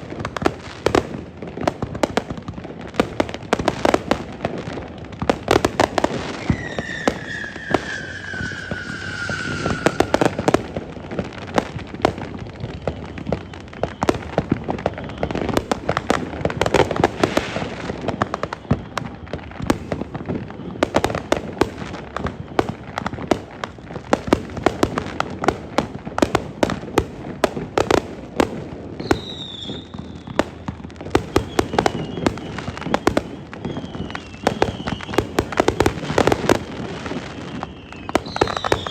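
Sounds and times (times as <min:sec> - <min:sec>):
fireworks cracks and bangs: 0:00.0 - 0:38.9
firework whistle falling in pitch: 0:06.1 - 0:10.8, 0:29.0 - 0:36.5, 0:37.4 - 0:38.9.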